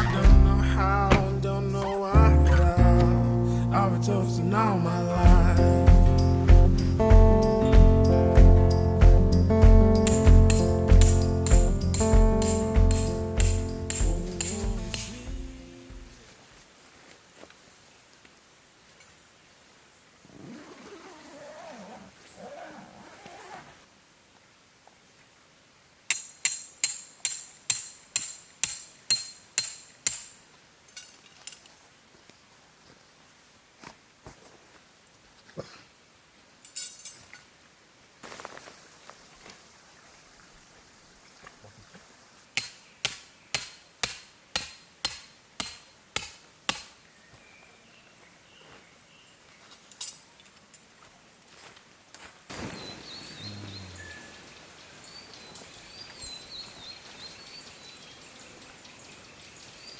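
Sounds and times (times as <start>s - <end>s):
hammer blows with ringing: 5.3s - 15.6s
hammer striking metal tent peg: 10.1s - 15.3s, 26.1s - 30.4s, 42.6s - 47.0s.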